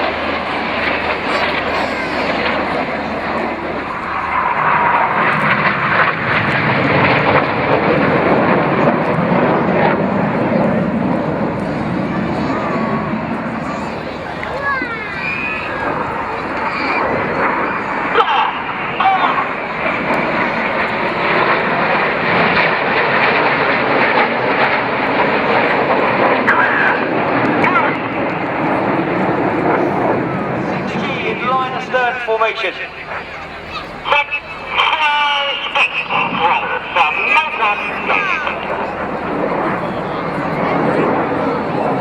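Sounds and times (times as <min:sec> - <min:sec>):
jets flying low past: 0:00.0 - 0:42.0.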